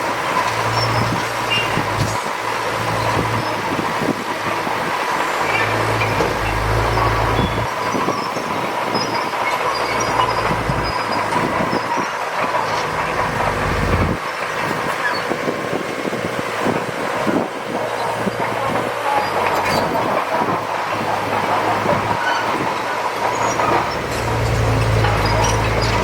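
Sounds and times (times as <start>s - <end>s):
diesel engine running: 0.0s - 26.0s
steel tracks clattering: 0.0s - 26.0s
track squeals: 0.4s - 3.7s, 5.4s - 14.2s, 15.0s - 15.4s, 17.9s - 26.0s.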